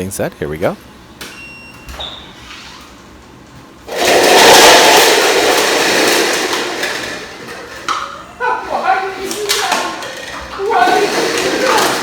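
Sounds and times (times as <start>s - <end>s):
stacked cups crashing down: 3.8s - 12.0s.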